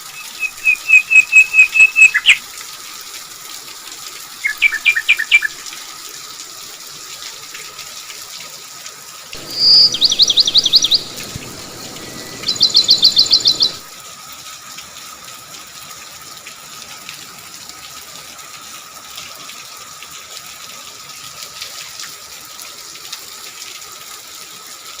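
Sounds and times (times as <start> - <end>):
steady rain: 0.6 - 25.0
bird sharp high notes: 9.4 - 13.9.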